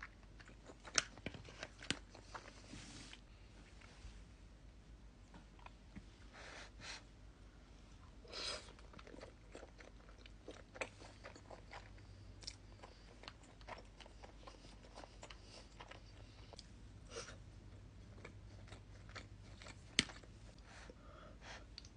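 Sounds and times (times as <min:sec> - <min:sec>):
close-miked chewing food: 0:00.0 - 0:02.7, 0:08.5 - 0:21.9.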